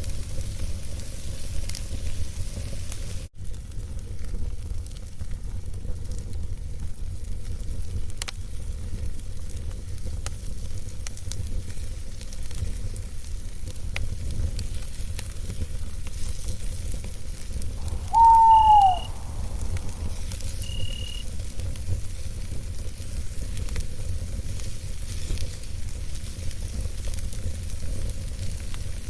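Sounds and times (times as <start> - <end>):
campfire burning: 0.0 - 29.0
whistled call: 17.8 - 21.2.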